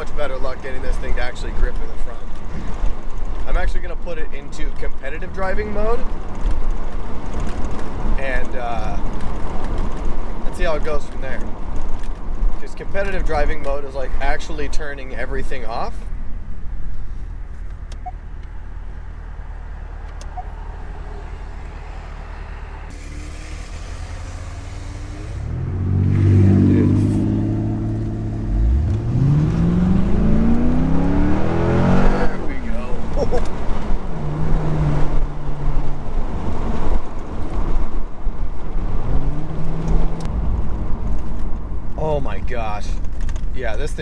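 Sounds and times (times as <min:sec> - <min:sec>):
car engine cruising: 0:00.0 - 0:44.0
road noise: 0:00.0 - 0:44.0
car engine accelerating hard: 0:19.6 - 0:37.9.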